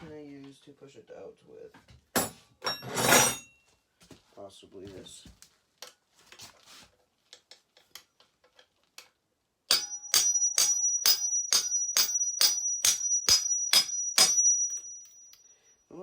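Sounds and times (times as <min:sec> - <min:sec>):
hammer striking metal punch: 0:09.7 - 0:15.1.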